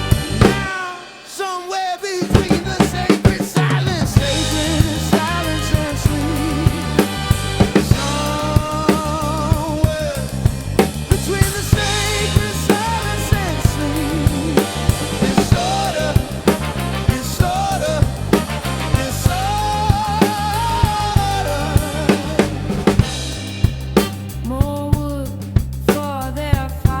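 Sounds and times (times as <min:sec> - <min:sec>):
bass line: 0:00.0 - 0:00.9, 0:02.3 - 0:27.0
drum kit playing: 0:00.0 - 0:27.0
vibrato melody: 0:11.6 - 0:24.2.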